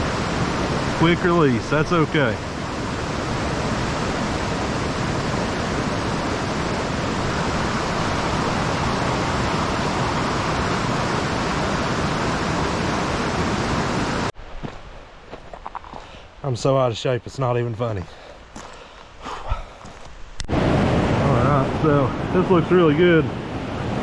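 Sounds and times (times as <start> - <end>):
stream rushing over rocks: 0.0 - 14.3.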